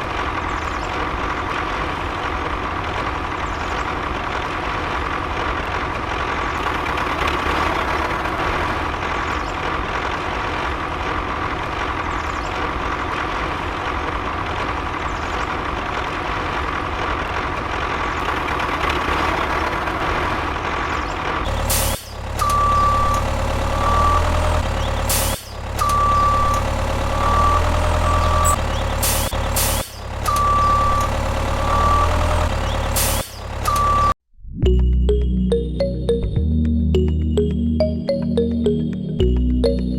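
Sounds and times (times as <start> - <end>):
electronic music with beeping notes: 33.7 - 39.9.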